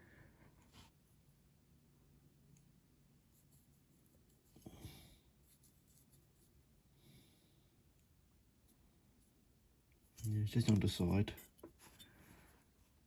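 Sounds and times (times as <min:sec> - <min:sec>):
faint scratchy rustles: 0:03.3 - 0:06.7.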